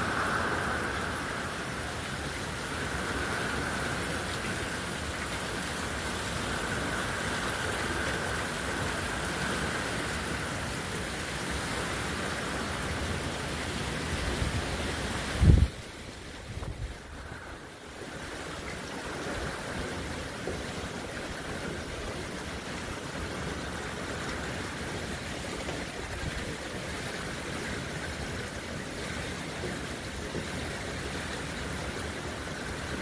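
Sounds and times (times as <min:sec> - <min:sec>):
heavy rain pouring: 0:00.0 - 0:33.0.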